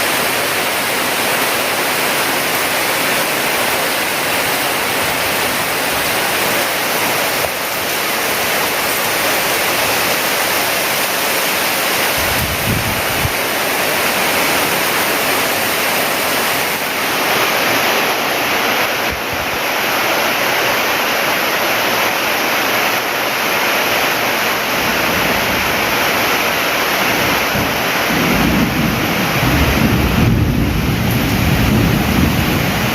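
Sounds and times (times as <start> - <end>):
heavy rain pouring: 0.0 - 32.9
strong wind: 3.4 - 20.2, 23.9 - 32.9.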